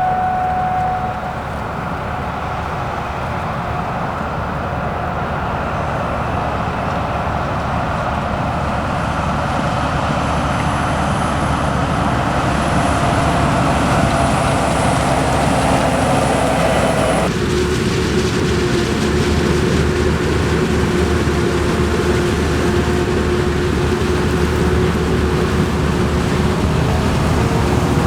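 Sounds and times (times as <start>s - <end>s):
high whine: 0.0s - 2.2s
farm machinery engines: 0.0s - 28.0s.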